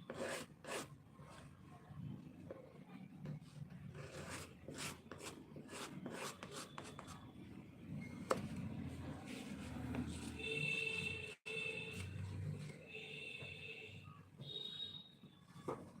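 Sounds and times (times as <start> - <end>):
pen scratching on paper: 0.0 - 1.5, 3.4 - 7.2.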